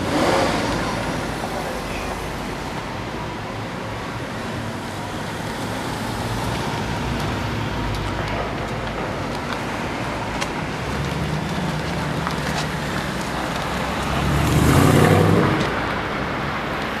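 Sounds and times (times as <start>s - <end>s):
cars driving past: 0.0s - 17.0s
car accelerating past: 12.7s - 15.9s.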